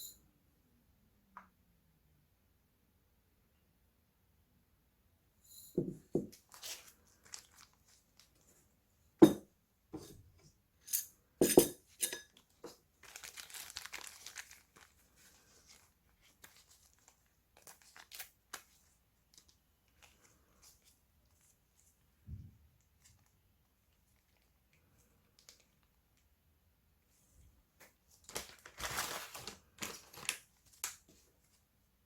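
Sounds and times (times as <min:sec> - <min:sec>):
dishes knocking and clinking: 0:05.8 - 0:06.3, 0:09.2 - 0:10.2, 0:11.4 - 0:12.3
plastic packet crinkling and tearing: 0:06.5 - 0:08.4, 0:13.0 - 0:20.5, 0:28.2 - 0:31.0.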